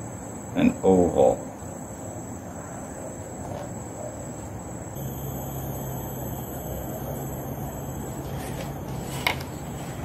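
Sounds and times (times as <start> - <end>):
low steady hum: 4.8 - 10.0
insect trilling: 4.9 - 10.0.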